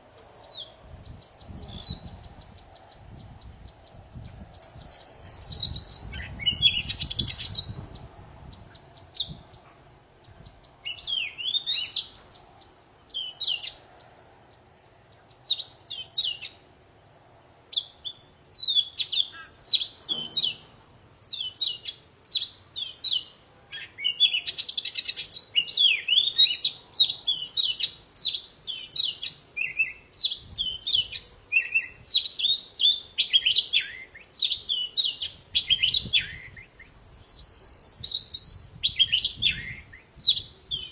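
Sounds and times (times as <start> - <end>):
magpie-robin singing sharp whistles: 0.0 - 0.8, 1.4 - 2.1, 4.6 - 7.8, 13.1 - 13.8, 15.4 - 16.6, 17.7 - 20.6, 21.3 - 40.9.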